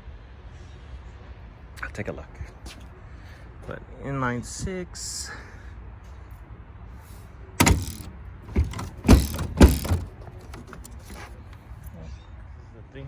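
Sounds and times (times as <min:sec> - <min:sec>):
car body latches clunking: 0:07.6 - 0:11.6.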